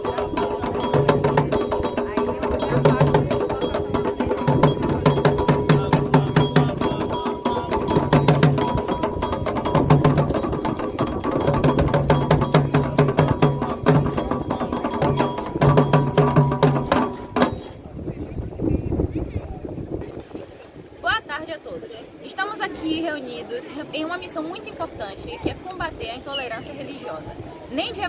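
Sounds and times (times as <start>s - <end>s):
rapid metallic clicking rhythm: 0.0s - 17.6s
hand drums low strokes: 0.0s - 17.8s.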